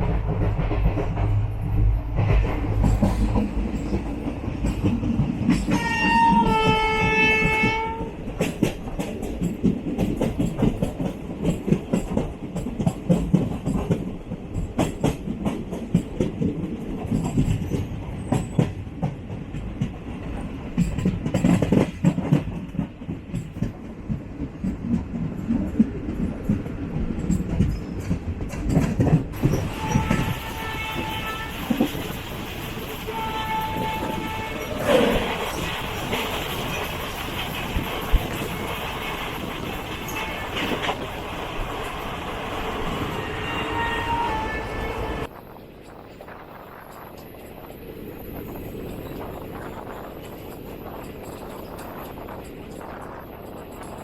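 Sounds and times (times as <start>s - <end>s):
wheels clicking over rail joints: 0.0s - 46.1s
train rumble and clatter: 0.0s - 54.0s
locomotive horn: 5.7s - 8.2s, 29.5s - 31.9s, 33.0s - 35.3s, 40.0s - 40.9s, 43.0s - 45.3s.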